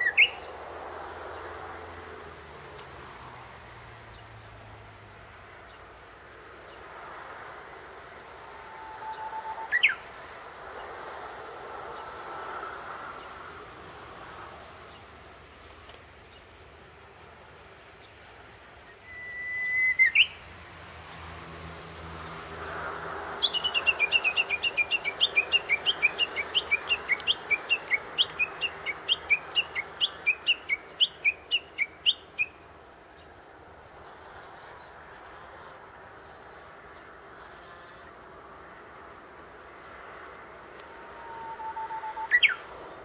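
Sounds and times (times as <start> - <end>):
bird whistle song with flourish: 0.0 - 0.4, 8.6 - 10.2, 18.9 - 20.4, 23.4 - 32.6, 41.1 - 42.7
rapid repeated bird notes: 23.4 - 36.8.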